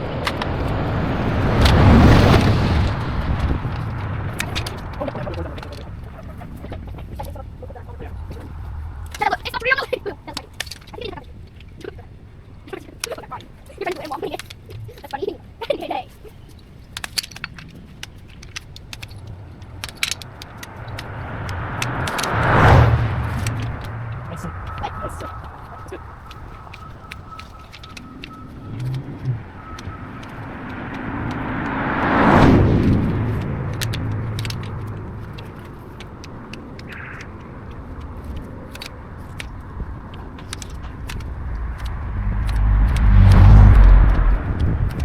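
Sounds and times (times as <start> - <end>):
car driving past: 0.0 - 10.9, 18.8 - 45.0
sharp clicks and snaps: 16.5 - 45.0.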